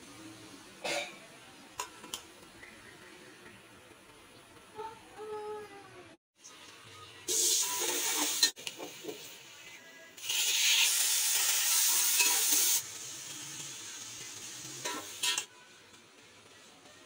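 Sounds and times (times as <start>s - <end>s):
oil sizzling: 6.4s - 16.3s
meat sizzling in oil: 10.2s - 15.4s.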